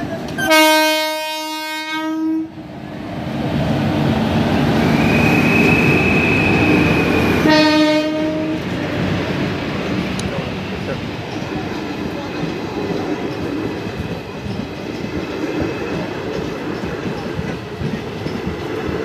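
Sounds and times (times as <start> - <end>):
train rumbling and clattering past: 0.0 - 19.0
train horn blast: 0.4 - 2.6, 7.4 - 8.8.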